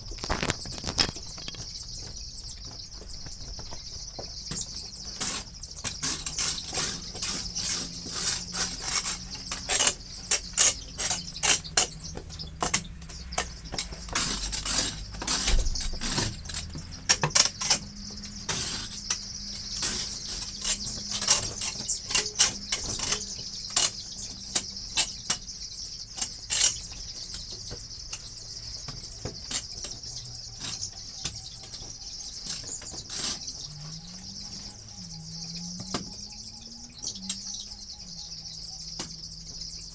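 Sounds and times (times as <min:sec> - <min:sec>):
bedding scratching and rustling: 0:00.0 - 0:35.2
chickens chirping: 0:00.0 - 0:39.9.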